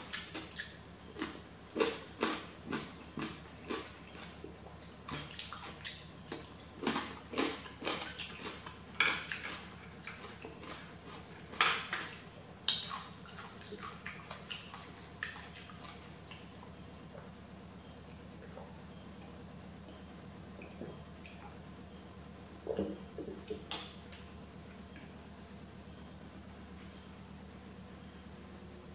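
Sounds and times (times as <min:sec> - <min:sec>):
chewing noodles: 0:00.0 - 0:16.6.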